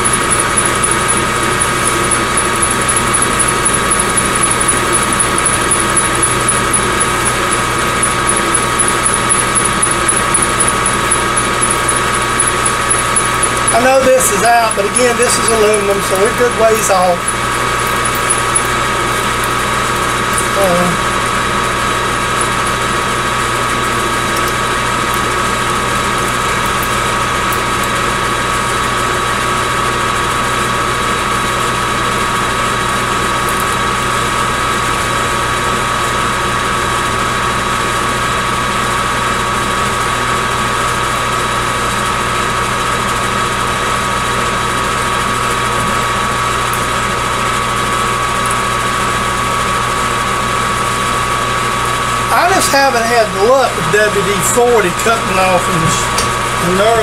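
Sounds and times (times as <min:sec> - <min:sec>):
metal lathe whining: 0:00.0 - 0:28.3.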